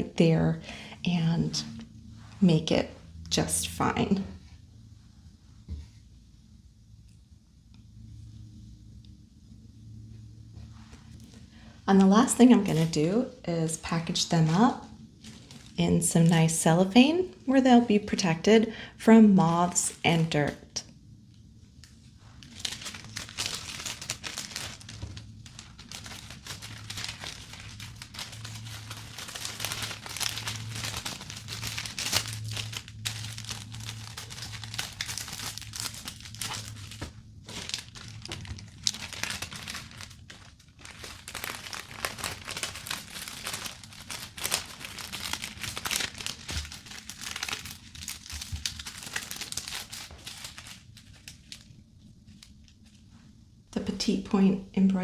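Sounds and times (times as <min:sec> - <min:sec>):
cellophane crinkling: 0:11.1 - 0:13.2, 0:13.8 - 0:16.9, 0:21.8 - 0:53.2.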